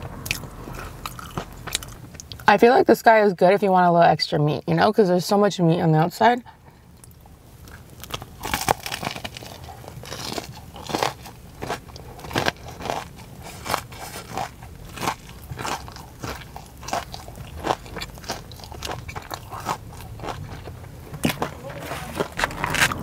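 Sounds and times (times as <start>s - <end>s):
crunchy biting and chewing: 0.2s - 2.4s, 7.0s - 23.0s.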